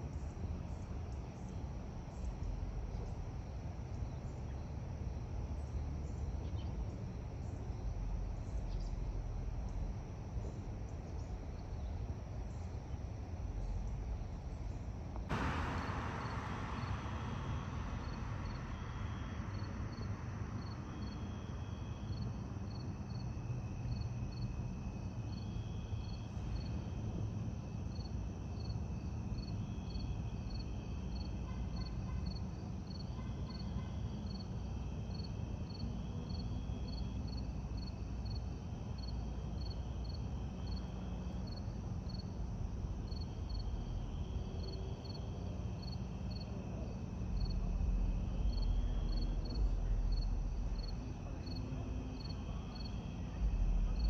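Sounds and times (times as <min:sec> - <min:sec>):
insects chirping: 0:00.2 - 0:54.0
distant aircraft rumble: 0:13.3 - 0:28.3, 0:35.9 - 0:54.0
sudden rush of noise: 0:15.3 - 0:21.7.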